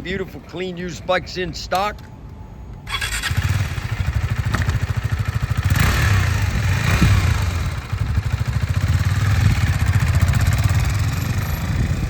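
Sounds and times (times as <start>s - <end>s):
motorcycle engine starting and running: 2.9s - 12.0s.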